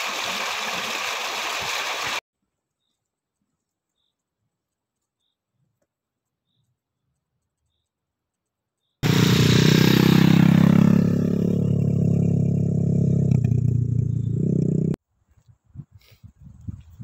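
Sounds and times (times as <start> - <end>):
loud engine running: 9.0 - 12.5.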